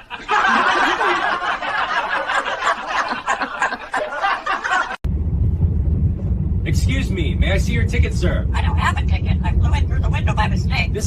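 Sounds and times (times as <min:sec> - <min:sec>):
crowd laughter: 0:00.0 - 0:05.0.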